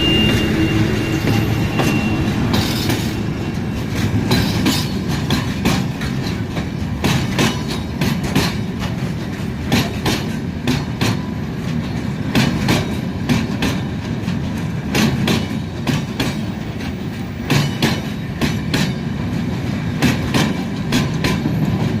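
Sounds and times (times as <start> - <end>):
train rumble: 0.0 - 22.0
wheels clacking over rail joints: 0.0 - 22.0.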